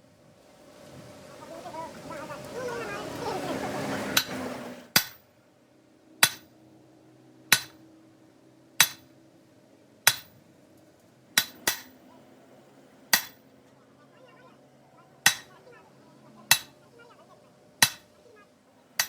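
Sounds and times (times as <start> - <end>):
hammer ringing on metal: 4.9 - 5.2, 6.2 - 6.5, 7.5 - 7.8, 8.8 - 9.0, 10.1 - 10.3, 11.4 - 12.0, 13.1 - 13.4, 15.2 - 15.5, 16.5 - 16.8, 17.8 - 18.2.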